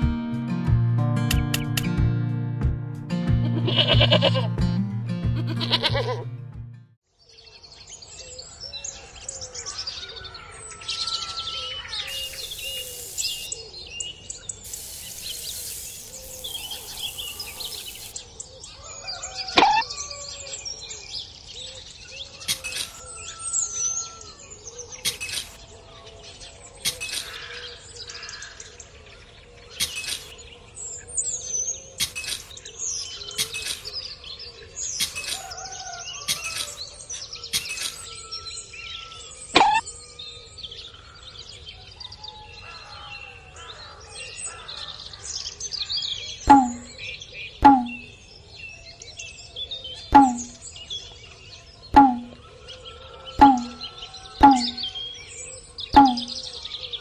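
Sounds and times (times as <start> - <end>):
birds chirping and singing: 7.2 - 57.0
loud sweeping bird call: 10.8 - 13.9, 14.5 - 20.5, 46.5 - 47.0, 50.2 - 50.7, 51.9 - 55.3, 55.9 - 56.7
high hiss: 12.1 - 13.6, 14.6 - 18.2.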